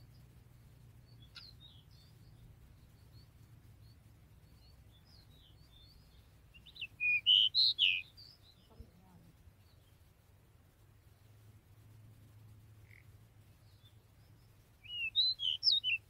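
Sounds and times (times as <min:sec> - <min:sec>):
bird chirping and whistling: 0:06.6 - 0:08.3, 0:14.8 - 0:16.0.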